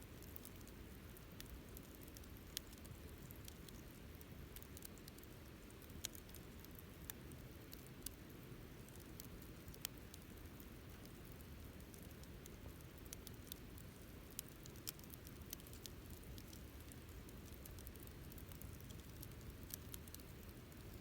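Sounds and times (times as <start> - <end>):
campfire crackling pops: 8.9 - 21.0.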